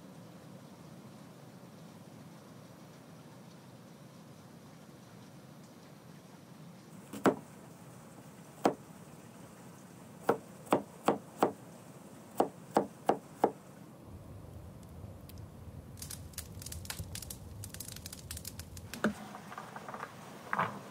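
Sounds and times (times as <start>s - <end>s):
knife chopping on wooden board: 7.1s - 7.5s, 10.2s - 11.6s, 12.4s - 13.6s.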